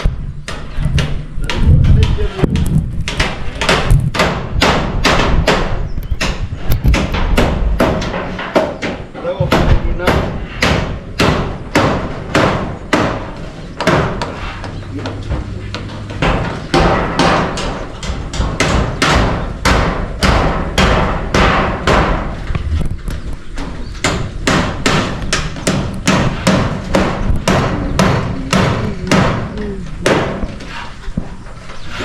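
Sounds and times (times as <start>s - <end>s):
hammer driving nails into metal: 3.0s - 14.4s, 15.8s - 22.4s, 24.0s - 30.5s.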